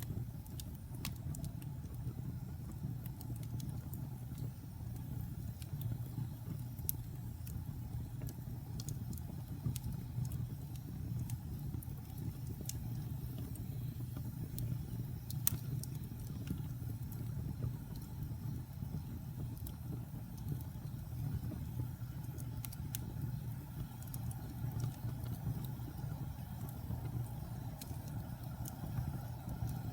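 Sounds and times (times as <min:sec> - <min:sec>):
fire flames rumbling: 0:00.0 - 0:29.9
logs crackling and popping: 0:00.0 - 0:29.9.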